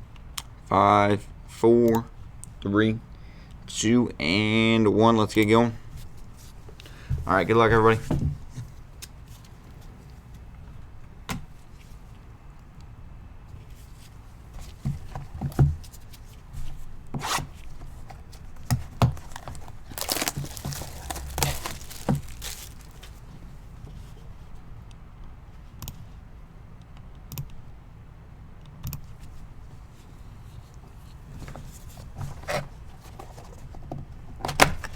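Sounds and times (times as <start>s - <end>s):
knocks and clicks of handling: 17.8s - 23.2s
wrapping tearing and crinkling: 18.6s - 23.3s.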